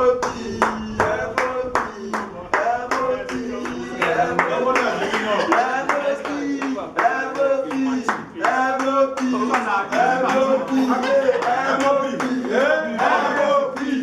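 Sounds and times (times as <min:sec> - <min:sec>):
crowd clapping in rhythm: 0:00.0 - 0:14.0
voices singing along: 0:00.0 - 0:14.0.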